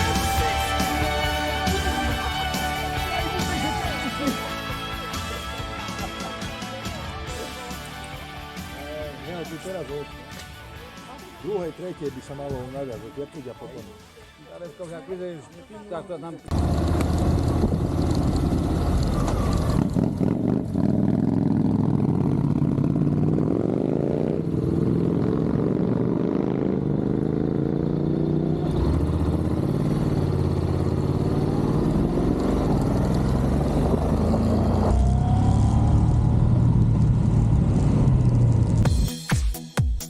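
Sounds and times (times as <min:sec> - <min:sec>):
motor scooter engine accelerating: 0:16.5 - 0:38.8.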